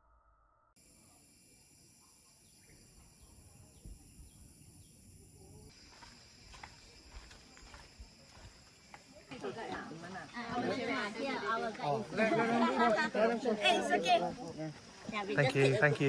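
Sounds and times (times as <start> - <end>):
repeated insect chirps: 0.8 - 9.4
insects buzzing: 0.8 - 16.0.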